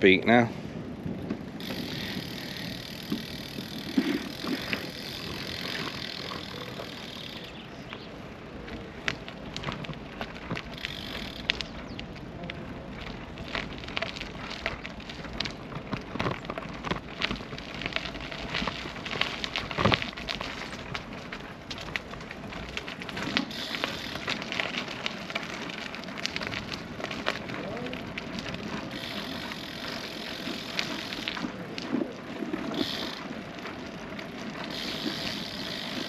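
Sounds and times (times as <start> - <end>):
bicycle clicks and rattles: 0.8 - 36.0
bicycle tyre hiss: 1.6 - 7.7, 10.7 - 11.7, 23.2 - 27.4, 28.6 - 31.6, 32.4 - 33.4, 34.6 - 36.0.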